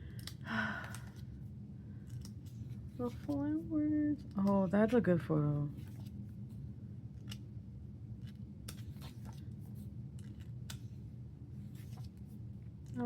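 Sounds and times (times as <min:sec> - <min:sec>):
low steady hum: 0:00.0 - 0:13.0
glossy paper cards being handled: 0:02.0 - 0:05.0, 0:05.6 - 0:07.5, 0:08.1 - 0:13.0.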